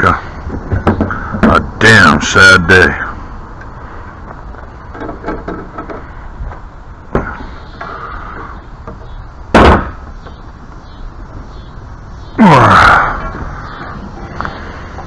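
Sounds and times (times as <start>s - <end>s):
loud bang: 9.5s - 10.0s
sharp knock: 9.5s - 10.0s.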